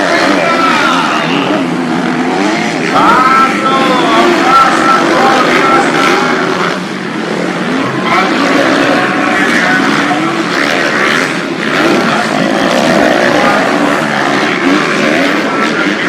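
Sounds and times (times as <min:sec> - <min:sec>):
motocross bikes revving past: 0:00.0 - 0:16.0.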